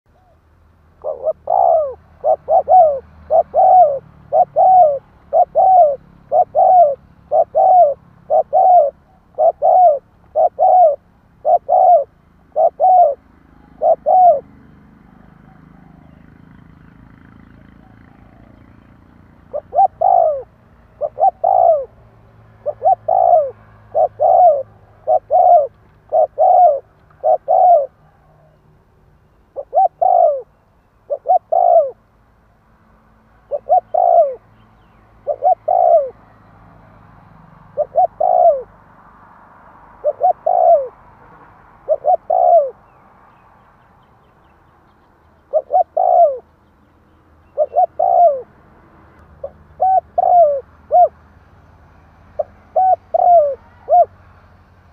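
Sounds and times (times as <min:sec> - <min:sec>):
dove cooing: 0:01.0 - 0:28.6, 0:29.5 - 0:32.0, 0:33.4 - 0:34.6, 0:35.2 - 0:36.2, 0:37.7 - 0:38.8, 0:40.0 - 0:42.9, 0:45.4 - 0:46.6, 0:47.4 - 0:48.5, 0:49.4 - 0:51.2, 0:52.4 - 0:54.2.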